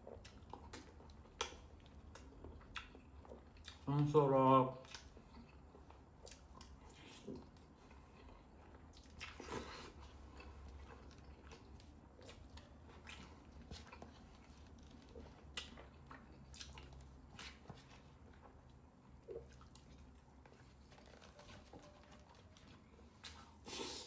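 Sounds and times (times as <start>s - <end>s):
chewing food: 0.0s - 24.0s.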